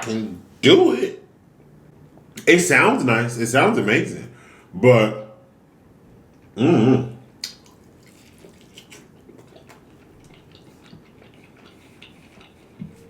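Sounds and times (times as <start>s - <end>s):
wet chewing mouth clicks: 7.4s - 13.0s.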